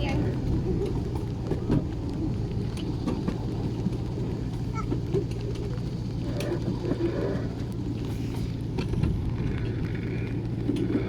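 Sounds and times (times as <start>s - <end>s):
clicks and knocks of train: 0.0s - 11.0s
miniature train rumbling on track: 0.0s - 11.0s.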